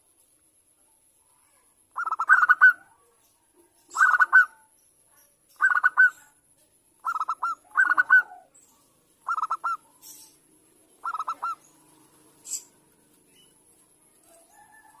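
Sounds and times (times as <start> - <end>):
dove cooing: 2.0 - 2.9, 3.9 - 4.6, 5.6 - 6.2, 7.0 - 8.6, 9.2 - 10.2, 11.0 - 11.8.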